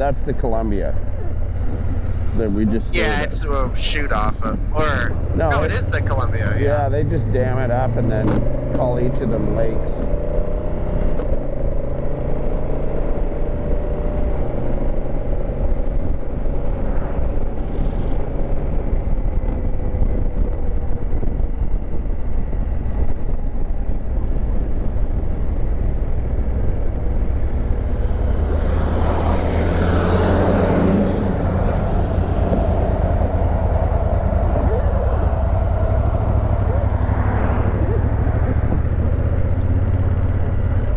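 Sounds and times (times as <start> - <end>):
motorcycle engine running: 0.0 - 13.6, 24.8 - 40.9
wind rush on microphone: 0.0 - 40.9.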